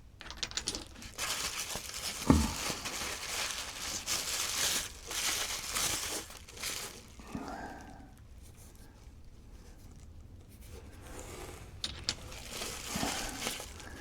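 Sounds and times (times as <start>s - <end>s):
packing material crinkling: 0.4s - 8.2s, 11.1s - 14.0s.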